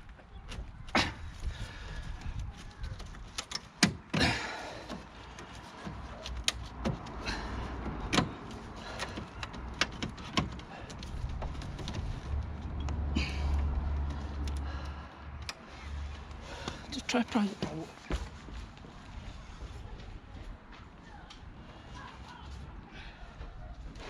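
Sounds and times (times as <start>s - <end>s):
plastic trim clicking and knocking: 7.8s - 12.1s.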